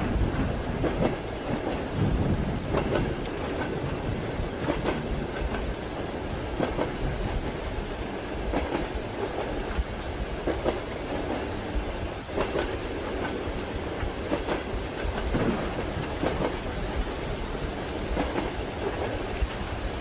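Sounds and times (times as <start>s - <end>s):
railway carriage rumble: 0.0s - 20.0s
rain hissing: 0.0s - 20.0s
train wheels clattering over joints: 0.0s - 20.0s.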